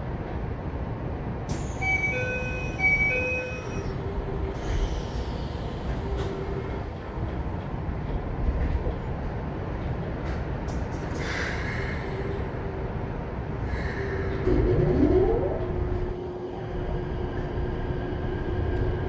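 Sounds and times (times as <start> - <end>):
train wheels and motors rumbling: 0.0 - 19.0.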